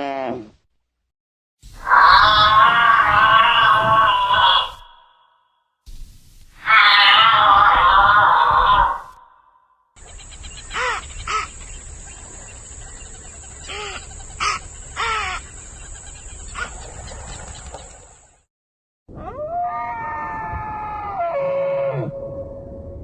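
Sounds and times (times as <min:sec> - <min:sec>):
harsh bird calls: 0:01.8 - 0:05.4, 0:06.6 - 0:18.4.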